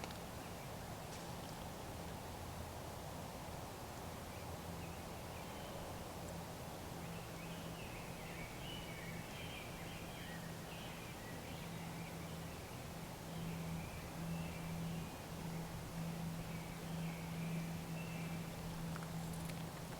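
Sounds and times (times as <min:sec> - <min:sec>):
steady low hum: 0:07.6 - 0:19.9.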